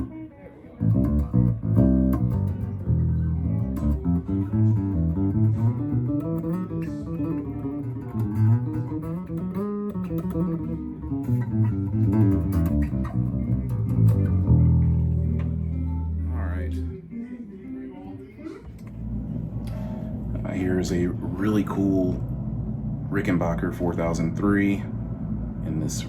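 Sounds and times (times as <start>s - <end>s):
electric bass guitar riffs: 0.0s - 17.3s.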